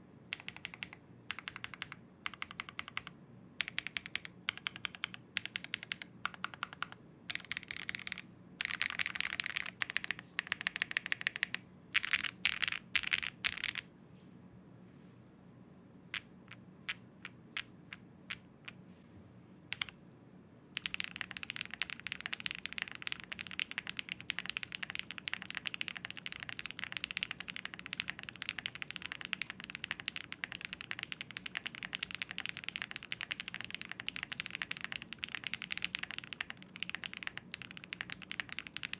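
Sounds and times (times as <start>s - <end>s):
mechanical keyboard typing: 0.3s - 13.8s, 19.7s - 20.0s, 20.8s - 38.9s.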